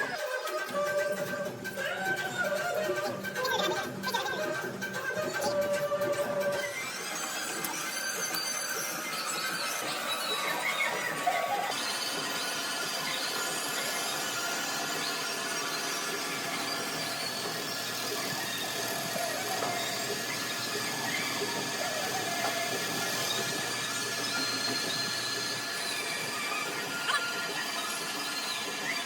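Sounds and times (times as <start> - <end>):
metalworking machine squealing: 0.0 - 29.0.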